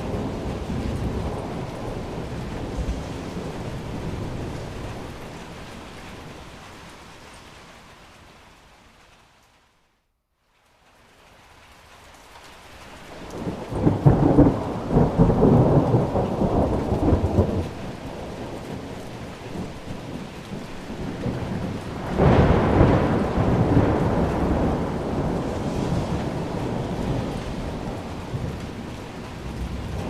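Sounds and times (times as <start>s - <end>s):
rolling thunder: 0.0s - 7.0s, 13.1s - 30.0s
steady rain: 0.0s - 30.0s.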